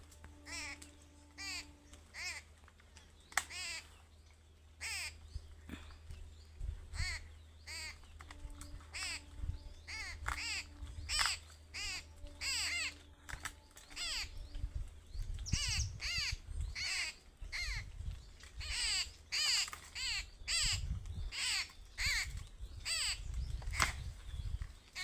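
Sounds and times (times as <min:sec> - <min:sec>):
harsh bird calls: 0:00.0 - 0:25.0
low rumble: 0:04.2 - 0:18.8.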